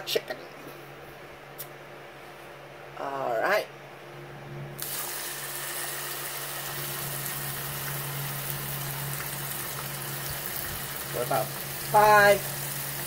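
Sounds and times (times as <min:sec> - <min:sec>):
meat sizzling in a frying pan: 0:04.8 - 0:13.0.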